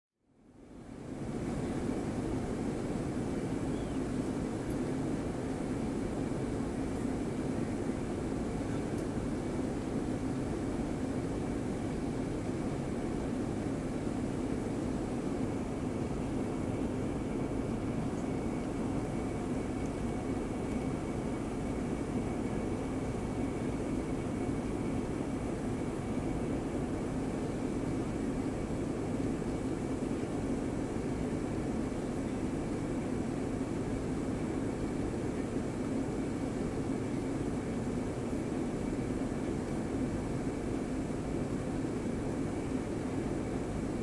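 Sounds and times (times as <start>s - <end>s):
faint steady whine: 0.2s - 44.0s
airliner cabin drone: 0.3s - 44.0s.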